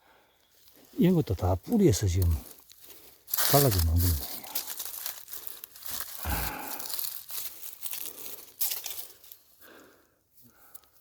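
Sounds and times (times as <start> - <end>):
crackling and rustling: 1.6 - 9.5.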